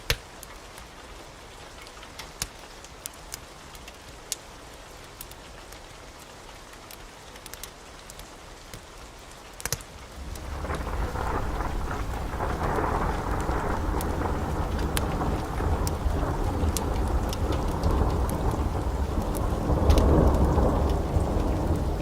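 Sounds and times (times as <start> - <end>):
steady rain: 0.0 - 22.0
sharp pops and ticks: 2.2 - 4.4, 9.6 - 18.6, 19.2 - 21.0
rolling thunder rumble: 10.0 - 22.0.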